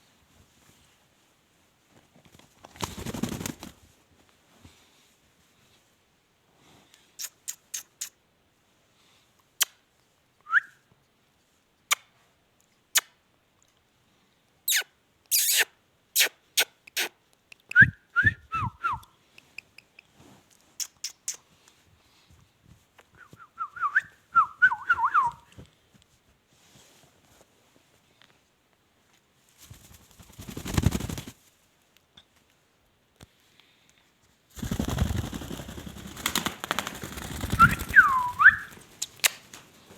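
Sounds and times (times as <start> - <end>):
parakeet whistling chirps: 14.7 - 16.3, 37.6 - 38.7.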